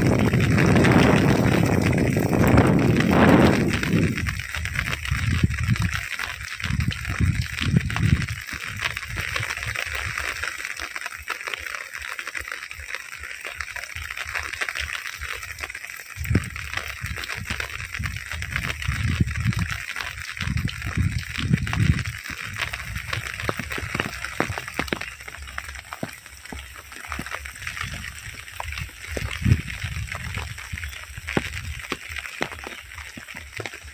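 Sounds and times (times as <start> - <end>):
wind gusts on microphone: 0.0 - 10.4, 16.2 - 25.3, 26.0 - 33.9
heavy rain falling: 0.0 - 33.9.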